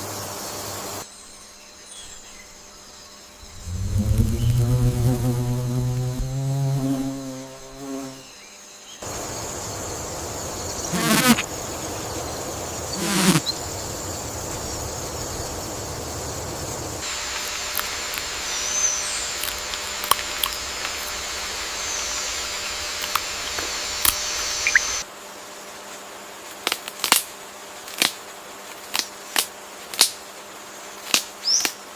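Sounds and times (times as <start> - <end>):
high insect buzz: 2.0 - 25.0.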